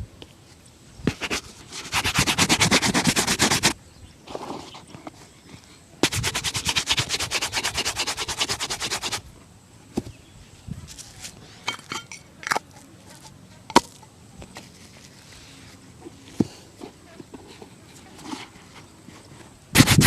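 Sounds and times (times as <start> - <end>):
shoe brush scrubbing a shoe: 1.1 - 3.8, 6.0 - 9.2, 19.8 - 20.0.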